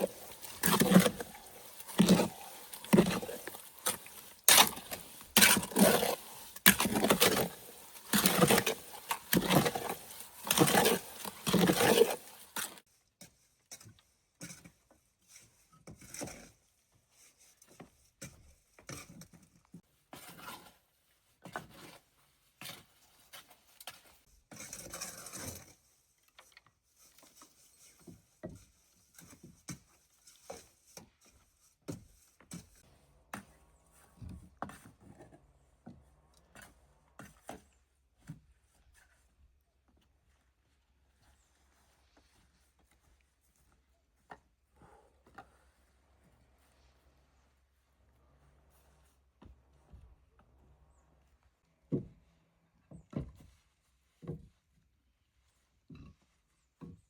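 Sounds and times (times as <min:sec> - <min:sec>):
knocking and scraping: 0:00.0 - 0:12.8, 0:27.2 - 0:47.5.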